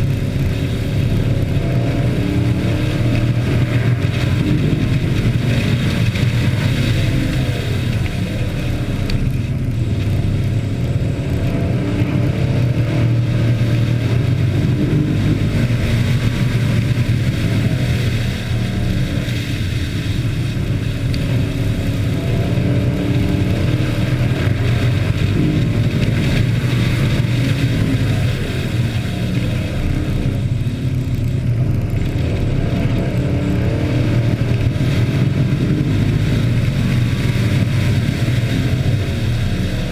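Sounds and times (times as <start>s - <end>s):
race truck engines revving: 0.0s - 39.9s.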